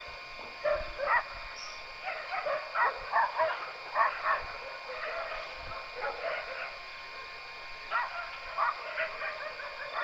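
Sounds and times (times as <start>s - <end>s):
dog barking: 0.6s - 1.4s, 2.0s - 6.8s, 7.9s - 10.0s.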